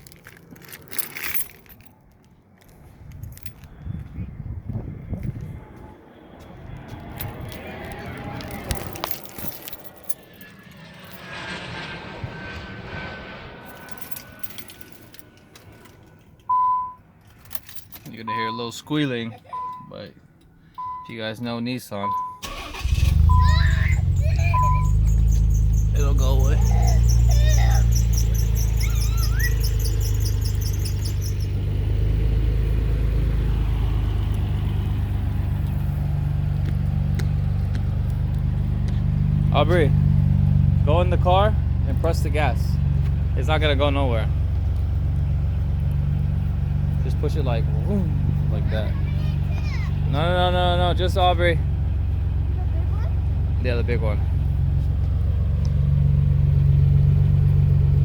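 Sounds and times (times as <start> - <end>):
loud steady beep: 16.5 - 17.0, 19.6 - 19.9, 20.8 - 21.1, 22.0 - 22.4, 24.4 - 26.0
faint high squeal: 22.4 - 31.6
car engine running: 22.4 - 58.0
rapid high chirping: 23.4 - 31.6.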